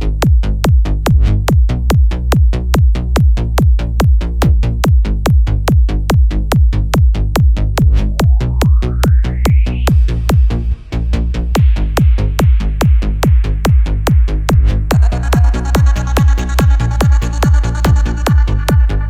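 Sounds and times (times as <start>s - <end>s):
pounding kick drum beat: 0.0s - 19.0s
electronic dance music: 7.8s - 19.0s
rising sweep: 7.9s - 11.9s.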